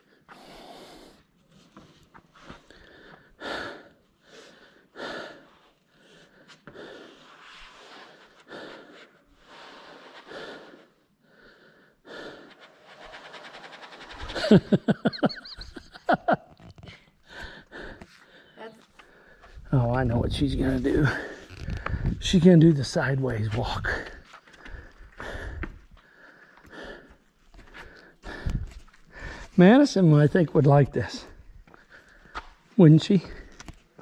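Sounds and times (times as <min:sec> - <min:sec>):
person breathing hard: 0:00.0 - 0:01.4, 0:02.4 - 0:14.8, 0:16.9 - 0:19.7, 0:21.0 - 0:22.2, 0:23.9 - 0:29.6, 0:31.2 - 0:32.6.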